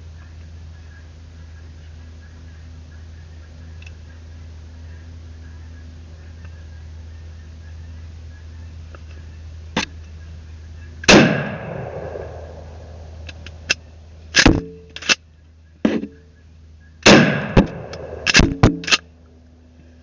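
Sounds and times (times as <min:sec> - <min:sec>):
gunshots with long echo: 0:11.1 - 0:13.7, 0:17.0 - 0:18.9.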